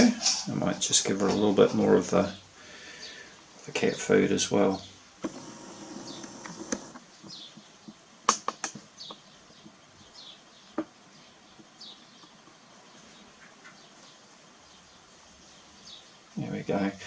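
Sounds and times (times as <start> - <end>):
bird chick chirping: 5.7 - 8.0
sharp clicks: 6.1 - 7.4, 8.3 - 9.2.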